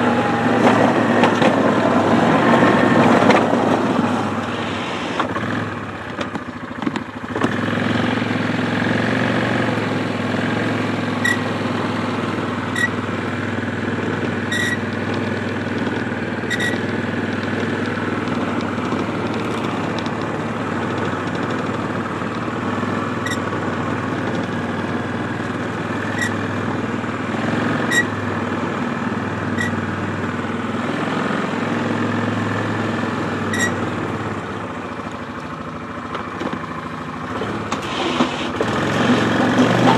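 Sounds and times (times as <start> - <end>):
engine running: 0.0 - 39.9
plow pushing through slush: 0.0 - 39.9
high squeak: 11.2 - 11.5, 12.7 - 13.0, 14.5 - 14.9, 16.4 - 16.9, 23.2 - 23.5, 26.1 - 26.4, 27.8 - 28.2, 29.6 - 29.8, 33.5 - 33.8.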